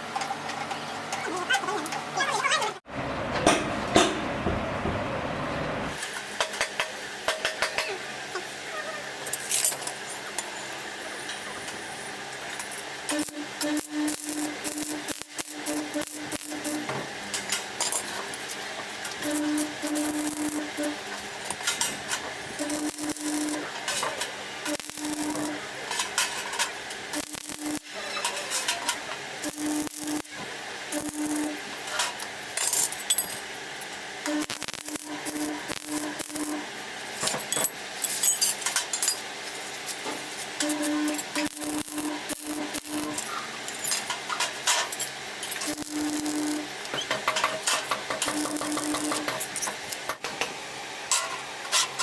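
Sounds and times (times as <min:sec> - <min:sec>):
crackle bursts: 0:13.0 - 0:17.7, 0:18.4 - 0:33.0, 0:33.7 - 0:37.2, 0:39.5 - 0:50.2
low pulsing hum: 0:19.2 - 0:21.0, 0:24.6 - 0:25.6, 0:34.2 - 0:36.8, 0:45.6 - 0:46.7.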